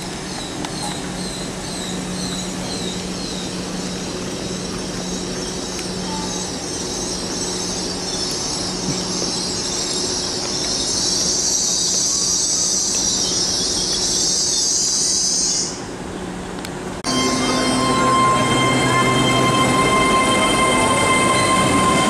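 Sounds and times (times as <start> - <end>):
train running past: 16.8 - 22.0
steady hum with tones: 16.9 - 22.0
high hissing squeal: 17.1 - 22.0.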